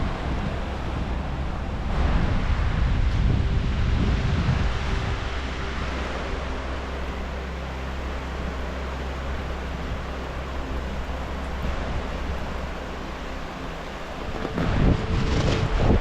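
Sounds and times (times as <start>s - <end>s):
wind buffeting microphone: 0.0s - 5.9s, 13.6s - 16.0s.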